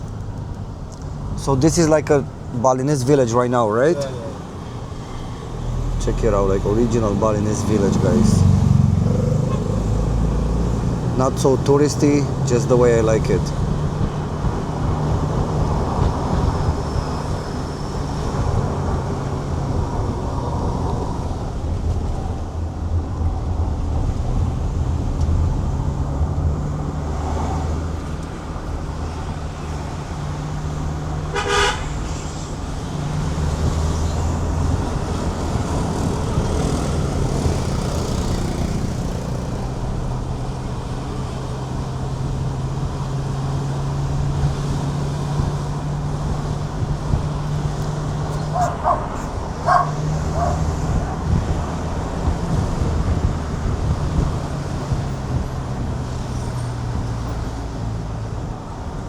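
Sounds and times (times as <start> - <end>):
car engine and road noise: 0.0 - 59.0
vehicle horn toot: 31.3 - 32.3.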